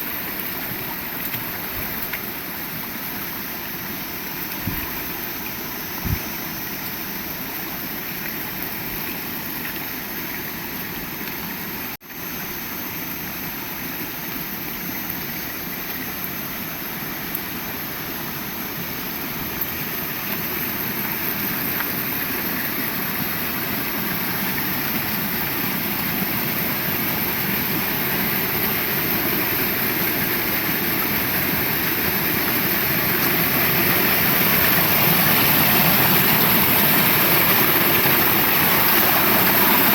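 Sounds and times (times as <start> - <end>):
heavy rain falling: 13.8 - 39.9.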